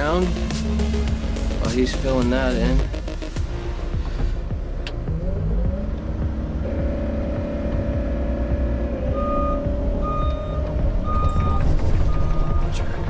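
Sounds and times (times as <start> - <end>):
steady mechanical whine: 0.0 - 13.0
travel alarm beeping: 6.6 - 12.8.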